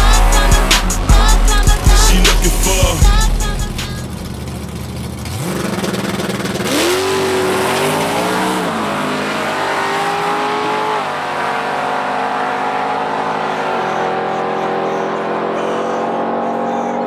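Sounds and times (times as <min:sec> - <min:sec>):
drag racing engines accelerating: 0:00.0 - 0:17.0.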